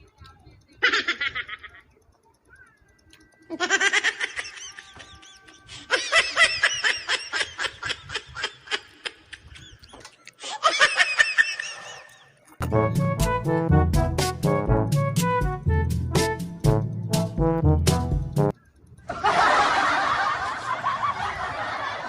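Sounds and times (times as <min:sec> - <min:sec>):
high-pitched laughter: 0:00.7 - 0:02.0, 0:03.5 - 0:12.4, 0:19.0 - 0:22.0.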